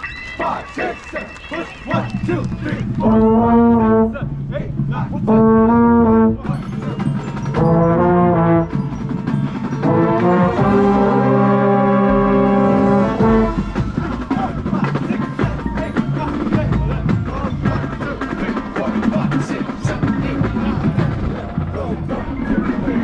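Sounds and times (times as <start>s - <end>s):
drums and percussion: 0.0s - 23.0s
marching band brass chords: 0.3s - 23.0s.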